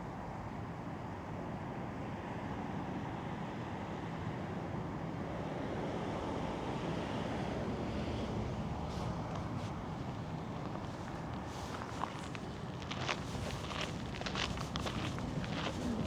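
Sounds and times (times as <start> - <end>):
faint footsteps: 8.9 - 16.0.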